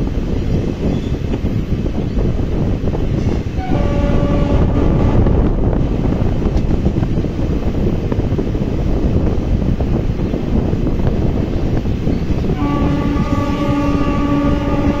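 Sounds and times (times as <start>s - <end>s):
train rumbling: 0.0s - 15.0s
wind on microphone: 0.0s - 15.0s.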